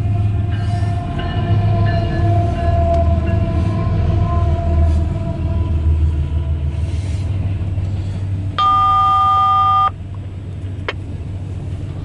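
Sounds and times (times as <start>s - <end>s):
freight train rumbling: 0.0s - 12.0s
loud electronic beep: 8.6s - 9.9s.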